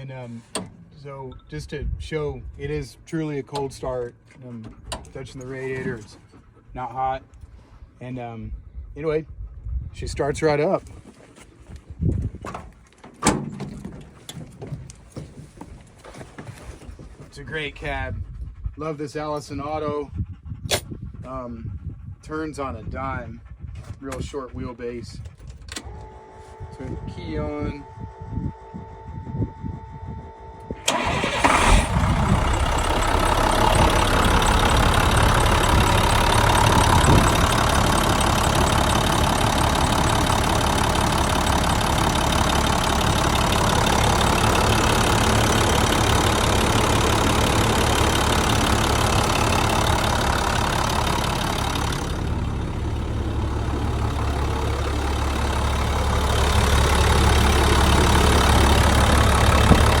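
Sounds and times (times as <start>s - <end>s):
truck engine starting and idling: 30.3s - 60.0s.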